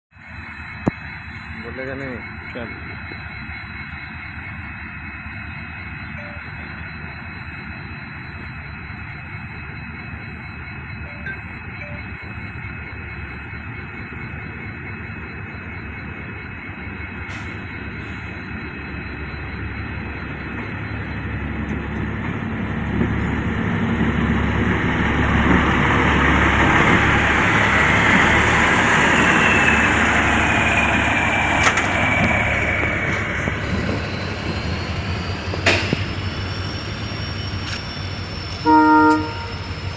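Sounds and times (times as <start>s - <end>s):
large vehicle engine rumble: 0.2s - 39.9s
whine sliding down in pitch: 24.4s - 39.9s.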